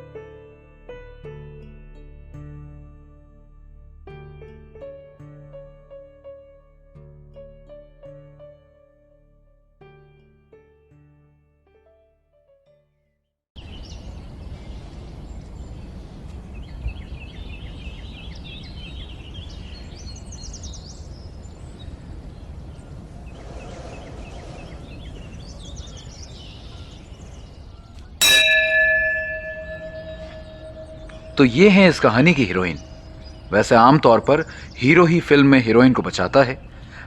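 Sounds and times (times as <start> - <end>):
bell-like chime ringing: 28.2 - 34.0.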